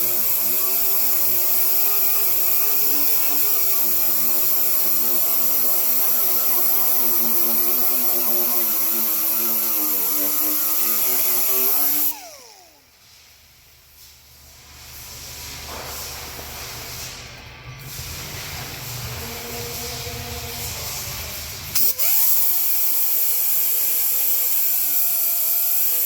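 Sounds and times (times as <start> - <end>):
handheld power tool running: 0.0 - 12.8, 21.7 - 26.0
power tool winding down: 0.0 - 12.8, 21.8 - 26.0.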